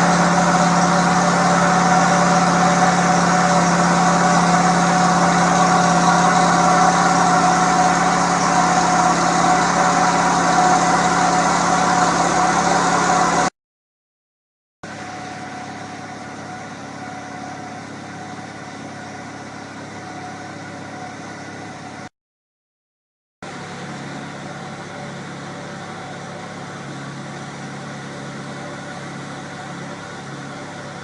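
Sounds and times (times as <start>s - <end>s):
petrol engine running: 0.0s - 13.5s, 23.5s - 31.0s.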